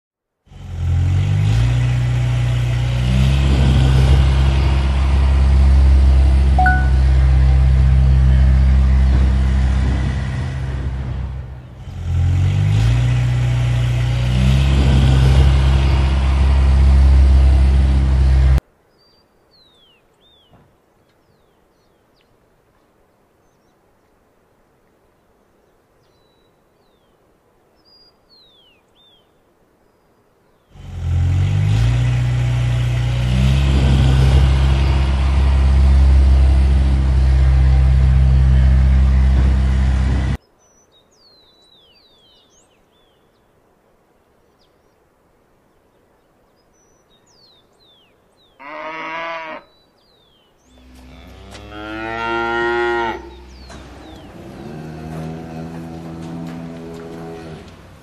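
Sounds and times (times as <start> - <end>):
truck engine running: 0.5 - 18.6, 30.8 - 40.4, 53.2 - 58.0
birds chirping: 6.6 - 7.1, 18.0 - 24.2, 25.1 - 30.8, 40.3 - 58.0.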